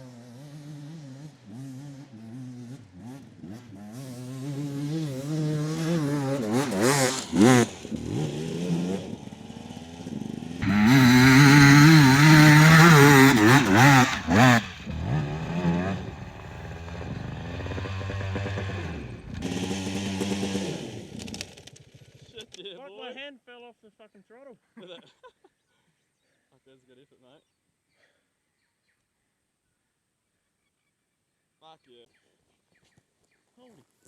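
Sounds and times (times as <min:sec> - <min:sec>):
dirt bike engine revving hard: 0:00.0 - 0:21.2.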